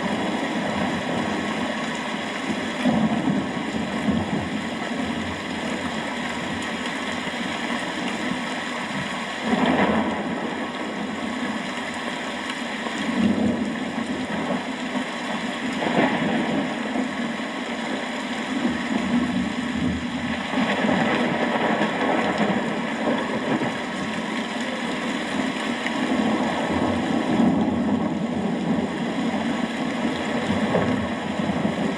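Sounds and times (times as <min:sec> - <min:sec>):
steady rain falling: 0:00.0 - 0:31.9
thunder rumbling: 0:25.4 - 0:31.9.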